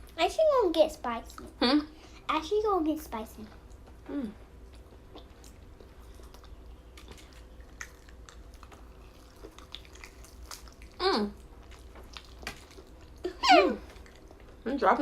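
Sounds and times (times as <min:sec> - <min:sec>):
chewing and wet mouth clicks: 0:04.7 - 0:13.3, 0:13.9 - 0:14.6.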